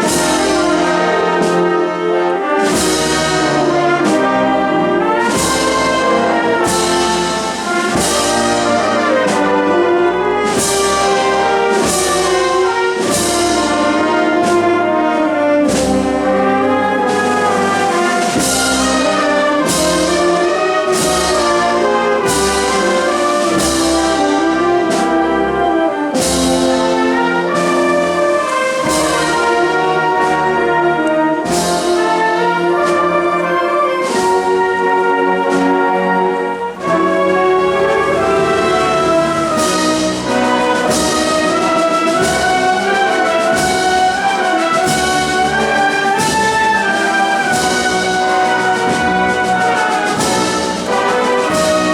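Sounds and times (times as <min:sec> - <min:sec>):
drum and cymbal strikes: 0:00.0 - 0:25.4, 0:26.1 - 0:33.2, 0:36.7 - 0:51.9
brass band playing a march: 0:00.0 - 0:51.9.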